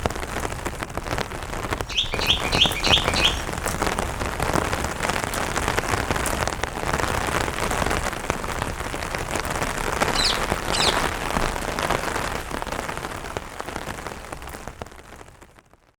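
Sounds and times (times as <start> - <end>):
rain tapping on umbrella: 0.0 - 16.0
bird chirps: 1.9 - 3.6, 10.1 - 11.1.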